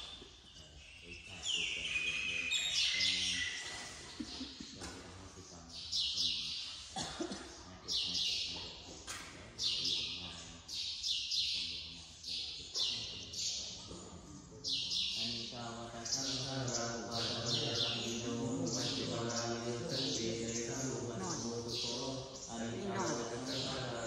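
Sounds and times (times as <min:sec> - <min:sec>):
bird raspy chirps: 0:00.0 - 0:07.0, 0:07.8 - 0:24.0
faint low voices murmuring: 0:00.0 - 0:10.8, 0:11.4 - 0:24.0.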